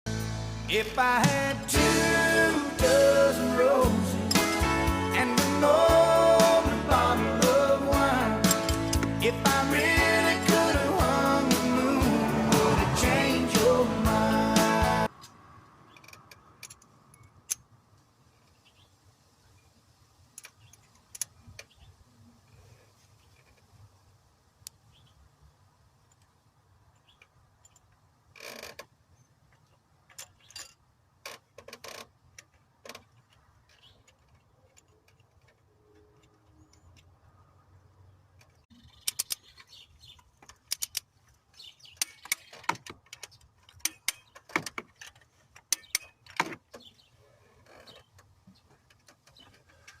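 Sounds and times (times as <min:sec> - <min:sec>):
metal engine parts clicking: 0:08.4 - 0:09.1, 0:15.9 - 0:17.8, 0:26.9 - 0:28.1, 0:29.4 - 0:37.2, 0:38.4 - 0:47.0.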